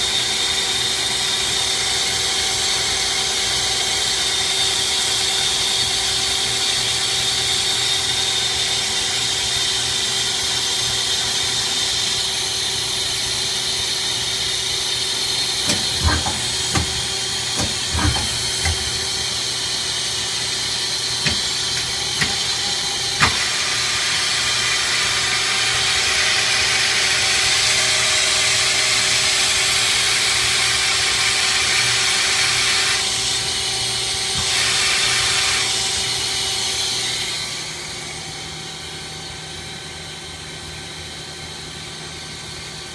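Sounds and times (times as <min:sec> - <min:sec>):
machine hum and hiss: 0:00.0 - 0:42.9
steady machine tones: 0:14.2 - 0:24.6
sharp machine clunks: 0:15.6 - 0:19.2.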